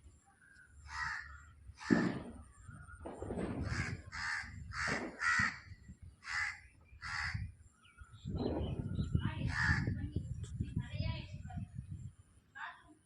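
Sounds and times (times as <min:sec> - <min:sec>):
bird harsh calls: 0:00.4 - 0:10.1.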